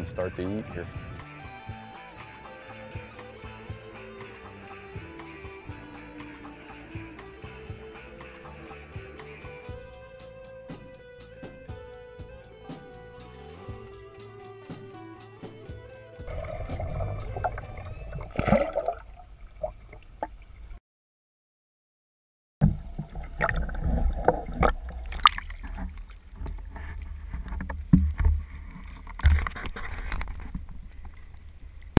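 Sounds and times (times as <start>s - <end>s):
choppy water splashing: 16.3s - 20.7s, 22.6s - 32.0s.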